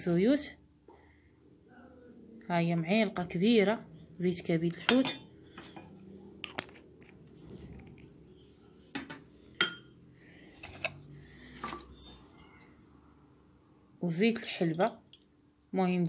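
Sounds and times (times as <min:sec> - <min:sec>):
faint handling noise: 0:05.5 - 0:09.9
metal spoon clinking against bowl: 0:09.6 - 0:09.9.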